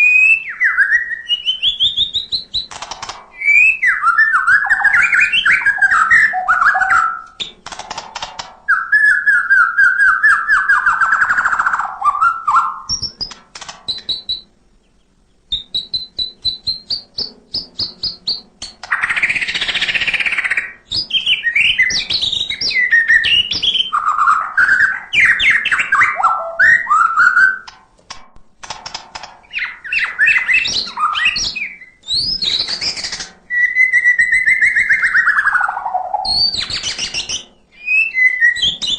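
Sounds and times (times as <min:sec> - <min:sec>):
bird singing varied song: 0:00.0 - 0:27.7, 0:29.4 - 0:38.9.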